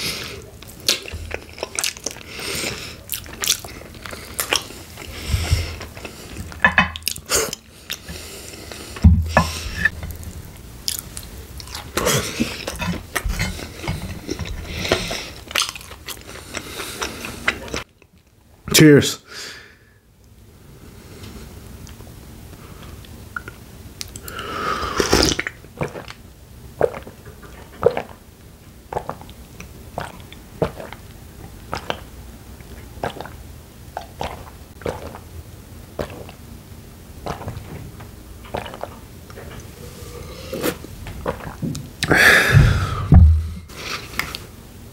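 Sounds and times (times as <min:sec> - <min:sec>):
chewing chicken wings: 0:00.6 - 0:05.1, 0:38.4 - 0:39.6.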